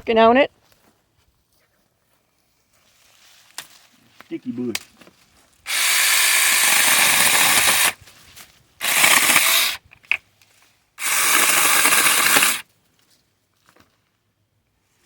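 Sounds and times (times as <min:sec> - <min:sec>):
mini chainsaw cutting branches: 0:05.7 - 0:08.0, 0:08.8 - 0:09.8, 0:11.0 - 0:12.7.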